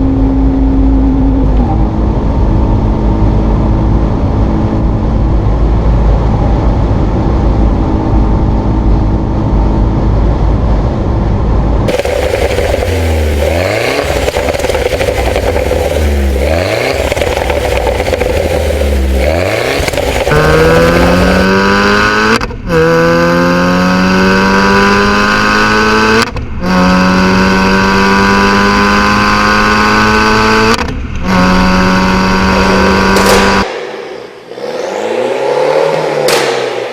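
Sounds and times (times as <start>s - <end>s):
car engine accelerating through gears: 11.8s - 36.9s.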